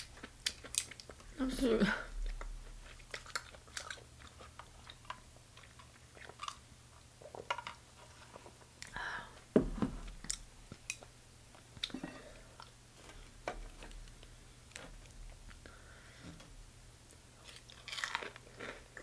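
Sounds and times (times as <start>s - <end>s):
chewing: 0.0s - 1.3s, 2.2s - 8.9s, 17.1s - 19.0s.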